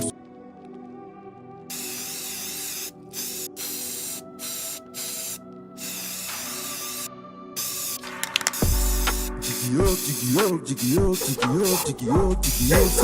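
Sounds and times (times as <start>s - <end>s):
loud bursts of hiss: 1.7s - 13.0s
synth chords: 6.5s - 13.0s.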